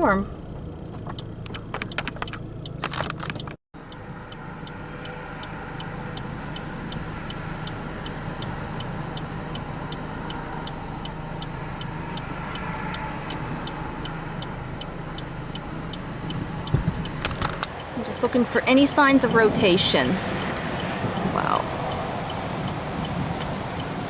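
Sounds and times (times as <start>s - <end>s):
car engine idling: 0.0s - 24.0s
turn-signal flasher ticking: 0.5s - 24.0s.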